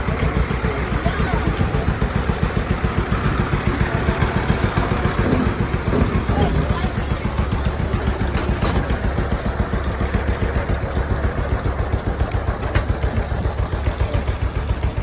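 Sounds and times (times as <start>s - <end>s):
tractor engine rumbling: 0.0s - 15.0s
light clicks and rattles: 7.7s - 15.0s.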